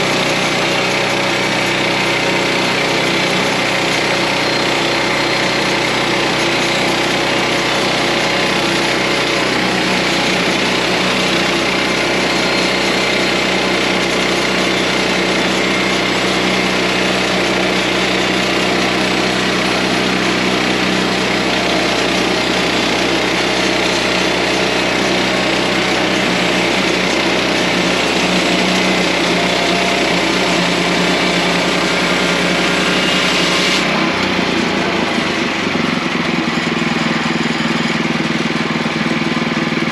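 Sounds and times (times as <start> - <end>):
sawmill engine running: 0.0 - 39.9
band saw blade hissing through log: 26.0 - 33.9.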